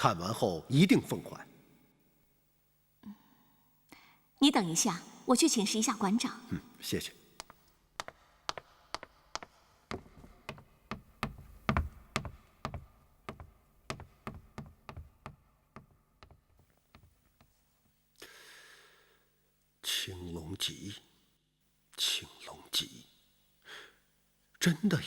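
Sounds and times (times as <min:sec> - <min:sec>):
footsteps on hard floor: 0:07.4 - 0:17.6.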